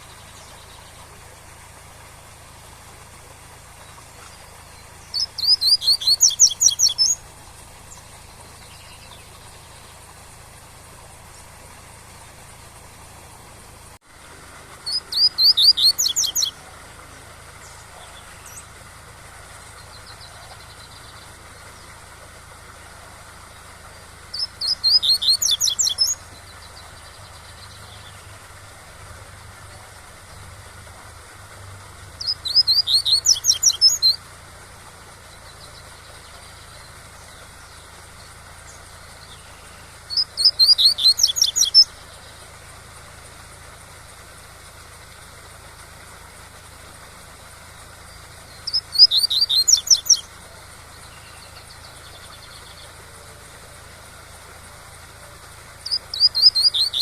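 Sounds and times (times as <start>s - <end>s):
waterfall rushing: 0.0s - 34.6s.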